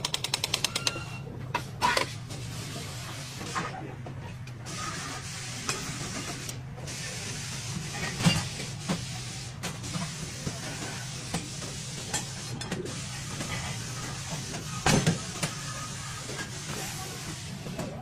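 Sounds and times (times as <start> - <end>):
mechanical clicks and knocks: 0.0 - 2.1.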